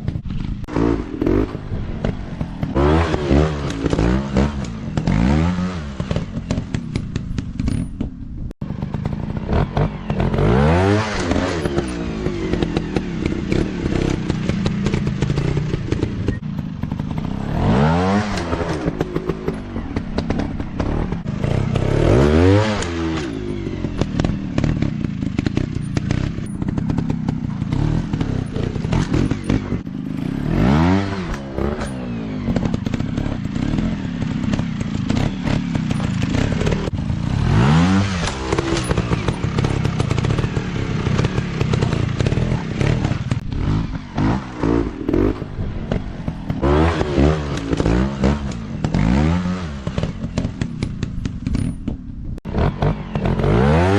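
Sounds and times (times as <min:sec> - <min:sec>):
dirt bike engines revving: 0:00.0 - 0:07.9, 0:08.6 - 0:53.9
bikes clattering over rough ground: 0:11.1 - 0:53.6.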